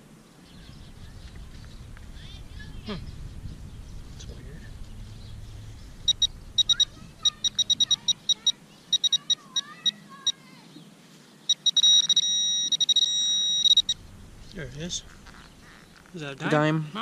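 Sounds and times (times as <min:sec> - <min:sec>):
pinpointer beeping: 0:06.0 - 0:10.4, 0:11.5 - 0:14.2.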